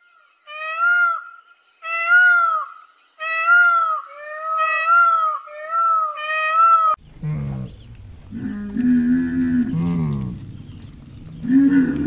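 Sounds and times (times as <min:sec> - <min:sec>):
animal crying high calls: 0:01.9 - 0:07.0.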